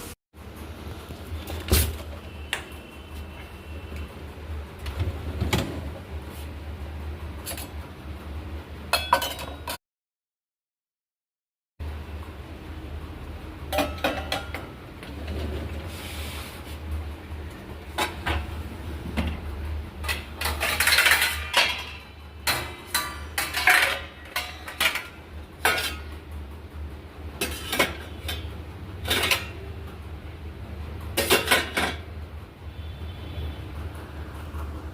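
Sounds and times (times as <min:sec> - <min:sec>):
dishes and cutlery clinking: 0:08.9 - 0:09.8, 0:13.7 - 0:14.7, 0:20.0 - 0:26.2, 0:27.4 - 0:29.7, 0:31.1 - 0:32.1.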